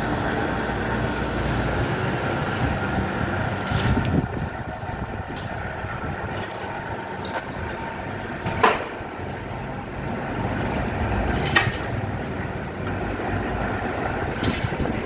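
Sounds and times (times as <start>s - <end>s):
cutting machine rumbling: 0.0s - 15.0s.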